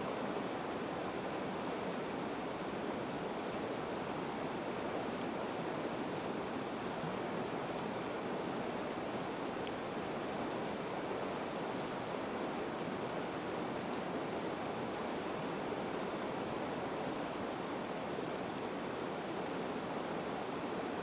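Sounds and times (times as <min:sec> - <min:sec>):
cricket chirping: 0:06.6 - 0:14.0.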